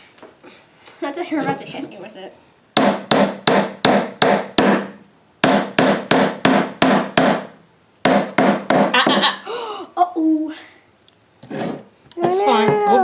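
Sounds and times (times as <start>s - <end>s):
hammer driving nail into wood: 2.8s - 9.2s.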